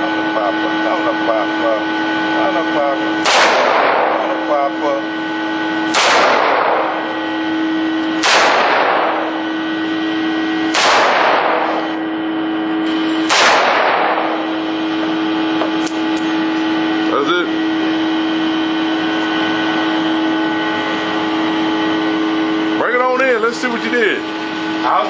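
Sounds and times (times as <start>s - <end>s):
steady hum: 0.0s - 25.0s
rifle shots echoing: 3.0s - 16.8s.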